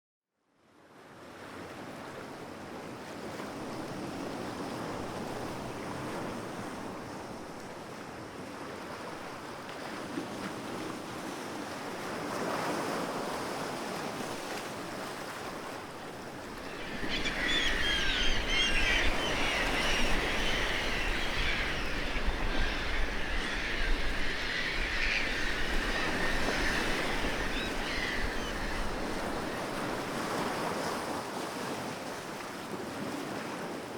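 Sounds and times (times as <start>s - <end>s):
sea surf washing: 15.4s - 31.4s.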